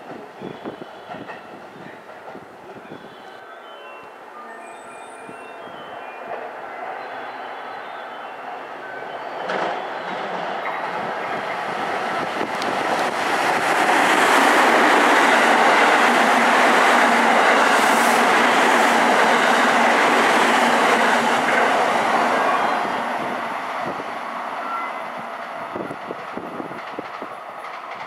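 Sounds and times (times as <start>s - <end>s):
train wheels rumbling on rail: 0.0s - 3.0s, 9.4s - 28.0s.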